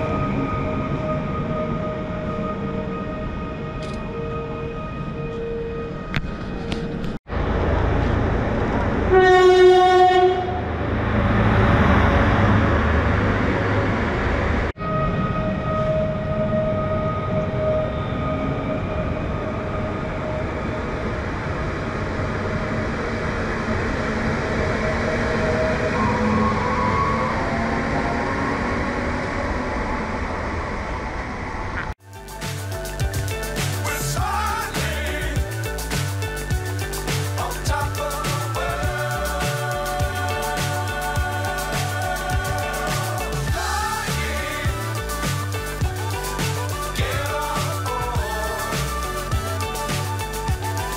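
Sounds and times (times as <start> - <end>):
whining tones: 0.0 - 32.0
train passing: 0.0 - 50.9
background music: 32.0 - 50.9.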